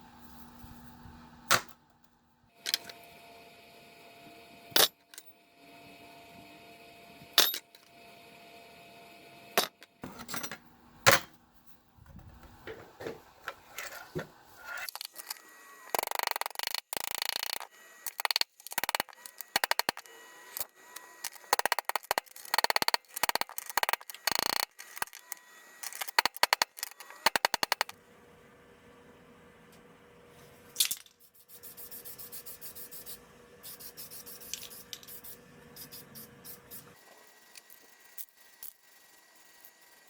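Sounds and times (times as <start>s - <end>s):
rapid clicking and rattling: 14.9s - 27.9s
sharp knocks and clicks: 16.0s - 20.1s, 21.3s - 27.9s.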